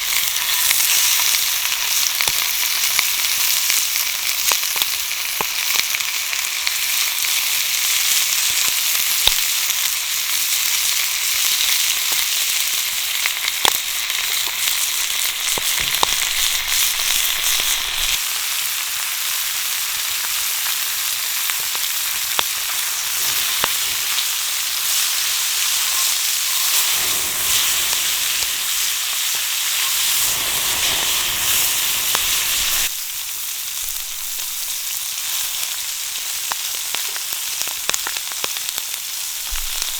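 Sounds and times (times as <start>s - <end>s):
meat sizzling in a frying pan: 0.0s - 39.9s
fat spattering pops: 13.6s - 18.2s, 39.5s - 39.9s.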